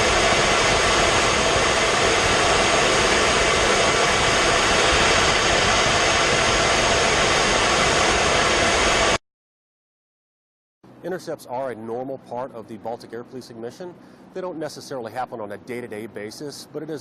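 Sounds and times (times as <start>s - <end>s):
jet aircraft hiss: 0.0s - 9.2s.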